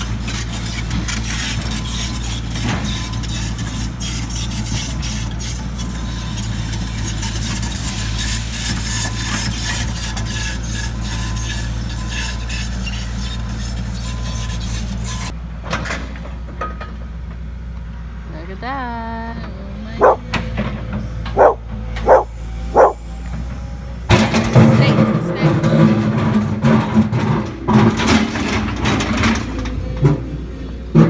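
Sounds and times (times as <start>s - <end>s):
metal clanks and grinding: 0.0s - 17.0s, 20.0s - 31.0s
excavator diesel engine running: 0.0s - 31.0s
bucket scraping on rock: 21.4s - 23.0s.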